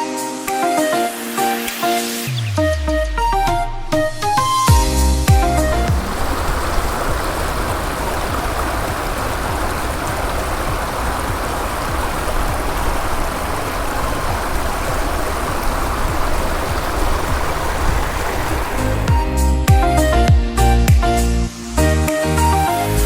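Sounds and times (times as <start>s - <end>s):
running water rushing: 4.7s - 19.8s.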